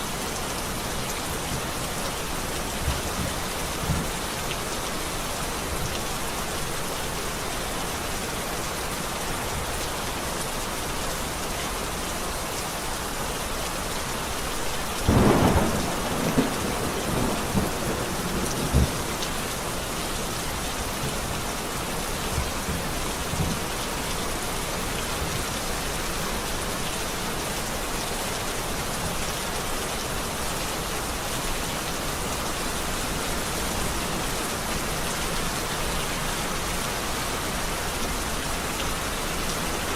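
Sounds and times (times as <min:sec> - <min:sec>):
heavy rain: 0:00.0 - 0:39.9
thunder rumbling: 0:15.1 - 0:19.5.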